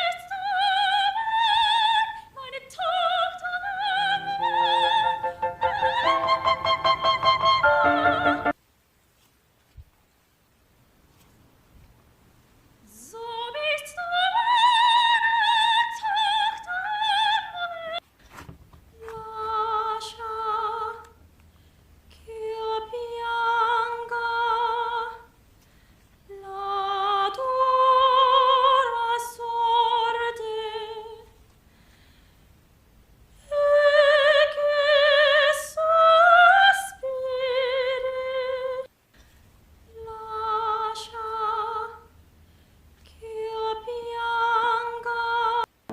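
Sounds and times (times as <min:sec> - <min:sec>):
soprano singing opera: 0:00.0 - 0:08.6, 0:12.9 - 0:18.0, 0:19.0 - 0:21.2, 0:22.1 - 0:25.3, 0:26.3 - 0:31.4, 0:33.4 - 0:38.9, 0:39.9 - 0:42.1, 0:43.1 - 0:45.7.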